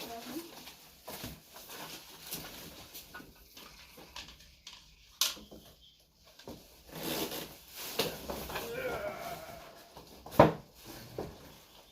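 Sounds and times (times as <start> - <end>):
handling rustles and knocks: 9.7 - 11.9.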